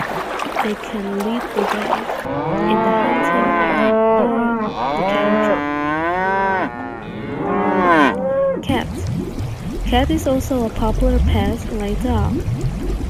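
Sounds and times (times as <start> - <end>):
cattle mooing: 2.3 - 8.6.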